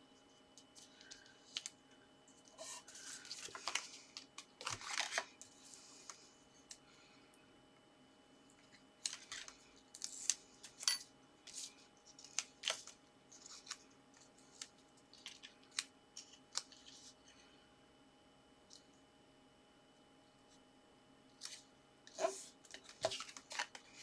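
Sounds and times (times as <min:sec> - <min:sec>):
card and paper handled by hand: 0:02.4 - 0:06.2, 0:08.6 - 0:17.2, 0:21.4 - 0:24.0.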